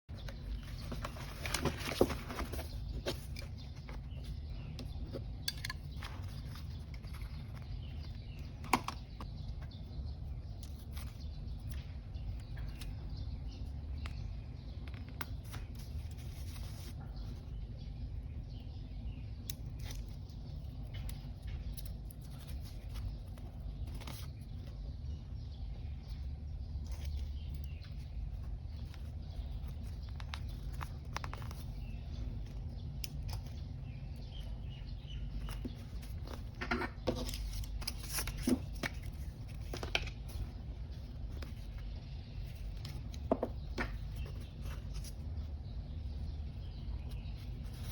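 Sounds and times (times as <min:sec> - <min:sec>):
paper rustling: 0:00.1 - 0:04.5, 0:15.1 - 0:17.5, 0:26.8 - 0:32.6, 0:35.2 - 0:43.1.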